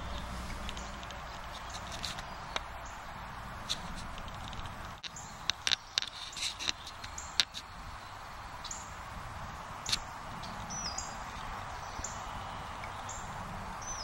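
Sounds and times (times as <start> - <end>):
small birds chirping: 0.0 - 14.0
steady background hiss: 0.0 - 14.0.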